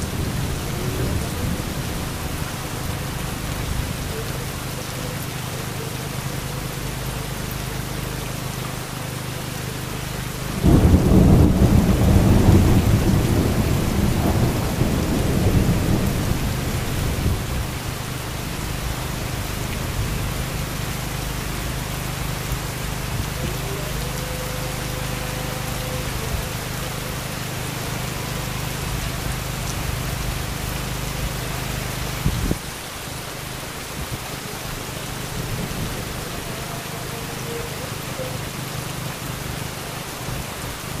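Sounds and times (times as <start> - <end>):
thunderclap and rumble: 0.0 - 4.1, 10.5 - 20.6
heavy rain: 0.0 - 41.0.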